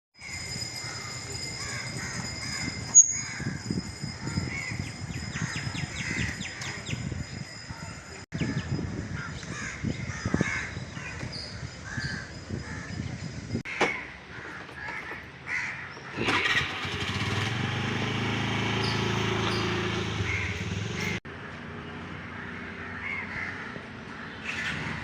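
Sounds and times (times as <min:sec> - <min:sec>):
birds calling: 0:00.2 - 0:17.5, 0:18.6 - 0:21.2, 0:21.8 - 0:25.0.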